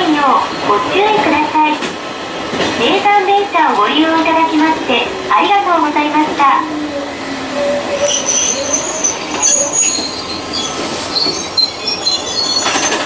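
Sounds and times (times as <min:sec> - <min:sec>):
train brakes screeching: 0:04.1 - 0:13.0.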